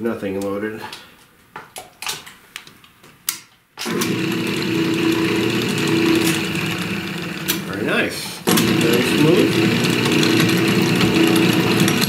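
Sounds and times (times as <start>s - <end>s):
drill press motor humming: 3.8s - 12.0s.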